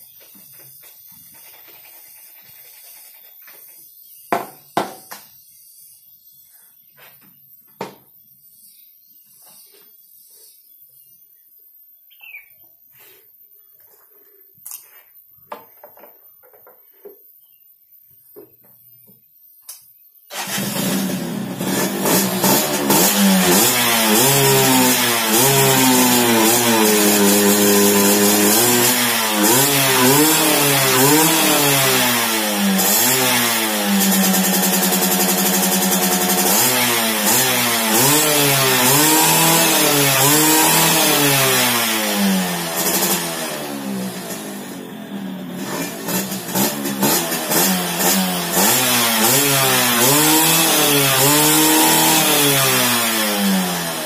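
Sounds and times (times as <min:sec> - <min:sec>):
motorcycle engine revving: 0:20.3 - 0:54.0.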